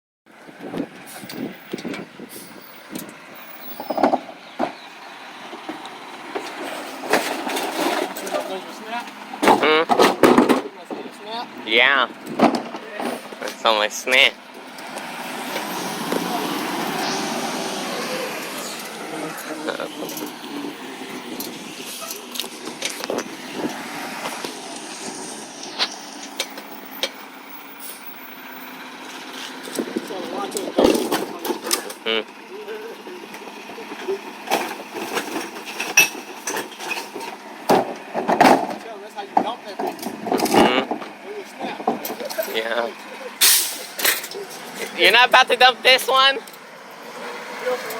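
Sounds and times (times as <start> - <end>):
recycling truck running: 0.3 - 47.9
recycling truck knocks and clanks: 2.9 - 13.6, 29.0 - 32.4, 33.3 - 42.8.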